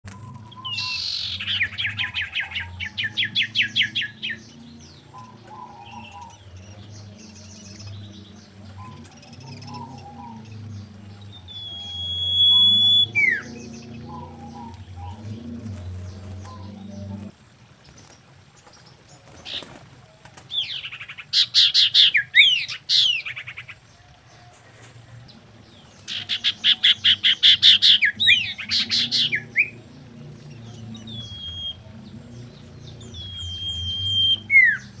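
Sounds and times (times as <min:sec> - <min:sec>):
bird chirps: 0:00.1 - 0:17.3, 0:25.7 - 0:35.0
bird song fast repeated notes: 0:00.1 - 0:18.8, 0:25.3 - 0:35.0
long bird whistle: 0:11.4 - 0:15.2, 0:31.1 - 0:31.8, 0:33.1 - 0:35.0.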